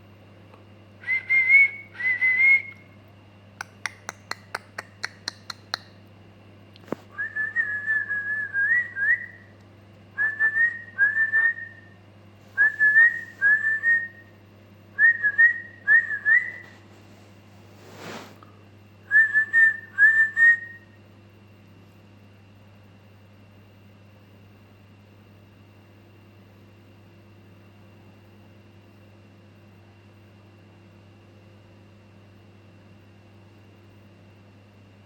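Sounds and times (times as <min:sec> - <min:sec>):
whistled phrases: 0:01.0 - 0:02.8, 0:10.2 - 0:12.0, 0:12.6 - 0:14.3, 0:15.0 - 0:16.7, 0:19.1 - 0:20.9.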